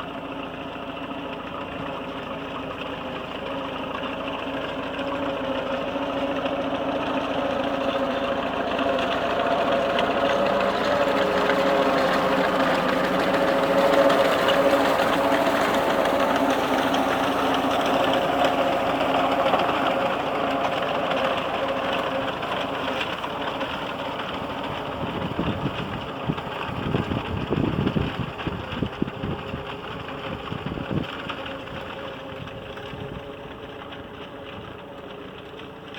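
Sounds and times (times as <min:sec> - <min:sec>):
tractor engine running: 0:00.0 - 0:35.9
low rumbles: 0:08.5 - 0:34.9.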